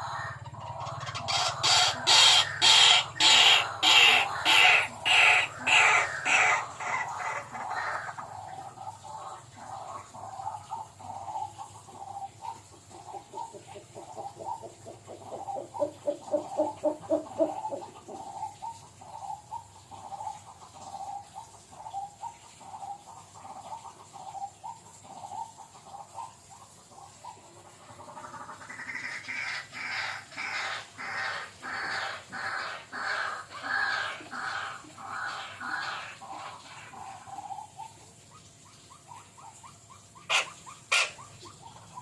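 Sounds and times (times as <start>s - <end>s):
bird calling: 0.0s - 8.6s, 12.2s - 18.8s, 28.2s - 42.0s.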